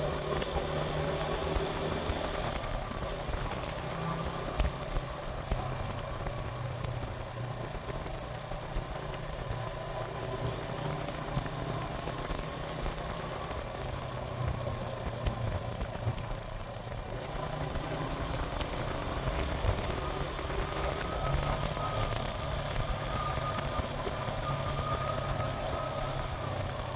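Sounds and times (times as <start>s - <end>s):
motorcycle engine running: 0.0s - 26.9s
wind and road noise hiss: 0.0s - 26.9s.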